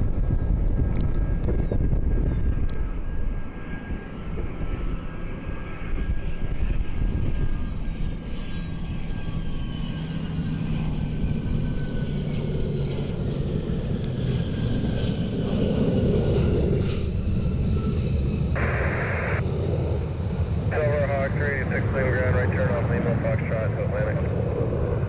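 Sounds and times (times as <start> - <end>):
wind rumble on microphone: 0.0 - 21.0
jet turbine whine: 0.0 - 25.0
radio static burst: 18.6 - 19.4.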